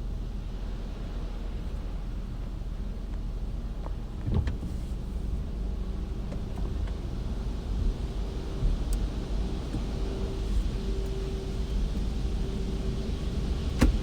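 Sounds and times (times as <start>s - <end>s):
car low rumble: 0.0s - 14.0s.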